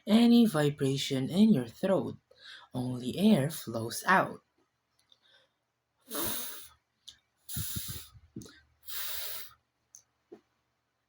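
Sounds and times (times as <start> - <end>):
person making fff hiss: 6.1 - 6.7, 7.5 - 9.6.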